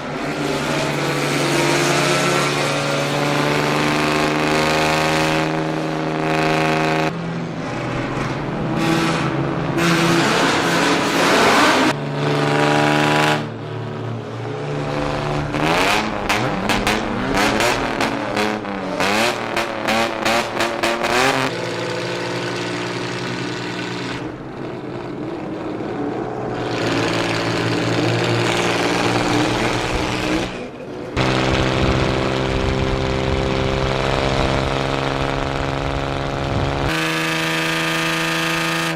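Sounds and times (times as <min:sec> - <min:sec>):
loud car engines idling and revving: 0:00.0 - 0:38.9.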